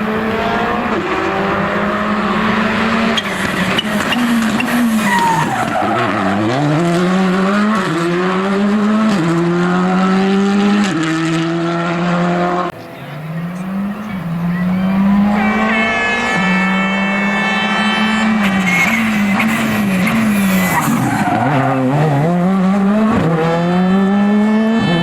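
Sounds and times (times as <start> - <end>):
rally car engine revving: 0.0 - 25.0
tyres squealing: 3.2 - 6.4, 17.6 - 21.8.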